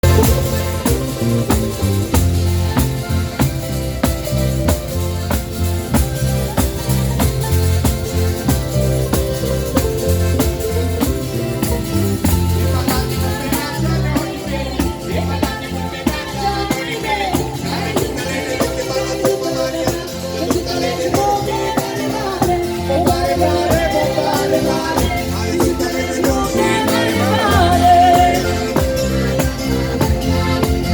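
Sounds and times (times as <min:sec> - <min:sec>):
bass line: 0:00.0 - 0:30.9
drum beat: 0:00.0 - 0:30.9
person singing: 0:12.3 - 0:30.9.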